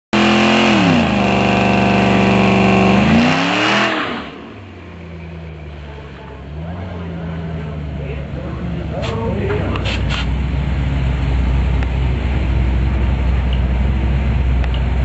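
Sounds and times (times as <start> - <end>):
car engine revving: 0.1 - 15.0.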